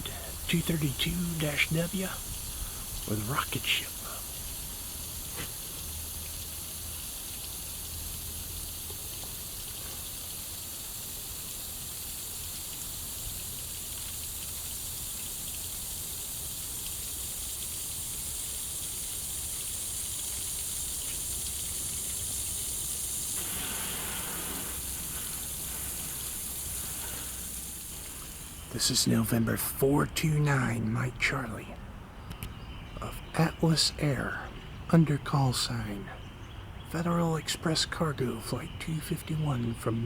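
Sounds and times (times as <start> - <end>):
steady hiss: 0.0 - 31.8.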